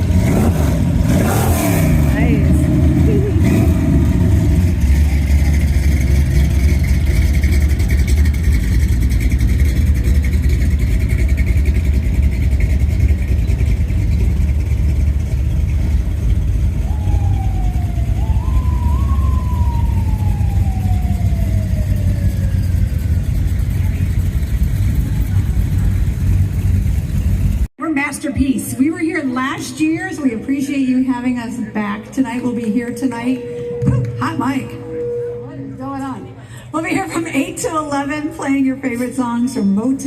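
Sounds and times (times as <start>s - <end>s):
vehicle engine rumbling: 0.0s - 27.8s, 28.4s - 40.0s
siren-like tone: 16.7s - 23.3s, 32.3s - 36.4s.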